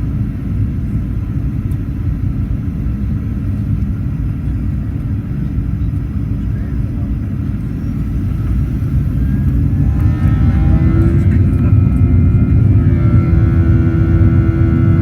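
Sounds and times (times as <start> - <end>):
jet engine rumble in cabin: 0.0 - 15.0
jet engine whine: 0.0 - 15.0.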